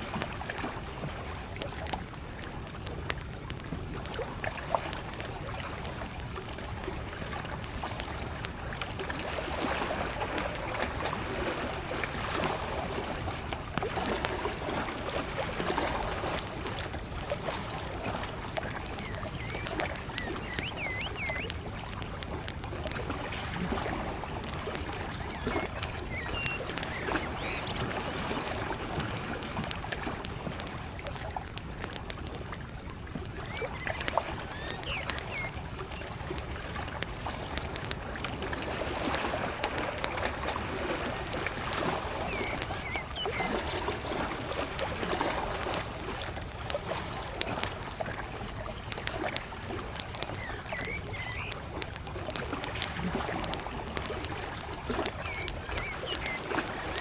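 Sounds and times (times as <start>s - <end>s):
campfire crackling and popping: 0.0s - 57.0s
small lake waves lapping: 0.0s - 57.0s
faint bird chirps: 18.1s - 21.7s, 24.4s - 28.8s, 33.3s - 36.8s, 41.7s - 44.7s, 50.0s - 51.8s, 55.0s - 57.0s.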